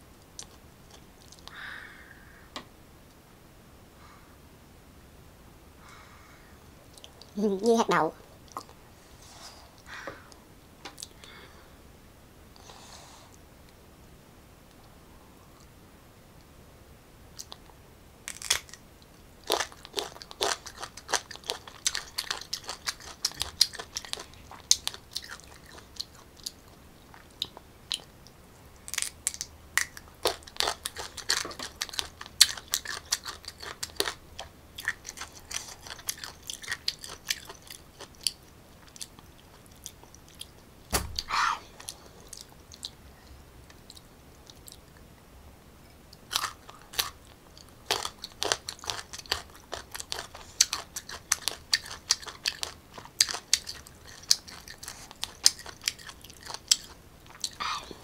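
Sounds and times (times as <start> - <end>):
crunching and chewing mango: 18.3 - 18.8, 19.4 - 28.2, 28.8 - 40.6, 46.2 - 57.6
loud thump: 40.9 - 41.2.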